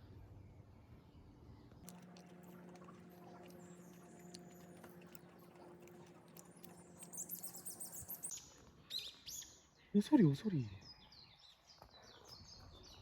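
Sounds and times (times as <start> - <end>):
small bird chirping: 3.6 - 11.4.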